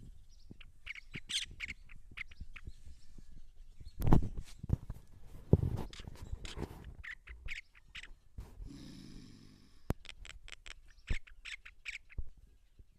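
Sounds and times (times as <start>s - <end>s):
myna chirping and clicking: 0.5s - 2.8s, 5.8s - 8.2s, 9.9s - 12.3s.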